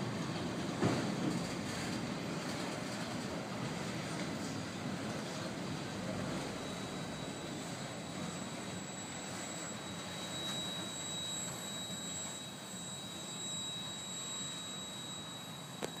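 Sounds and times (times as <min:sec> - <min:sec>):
train wheels rumbling on rails: 0:00.0 - 0:08.4.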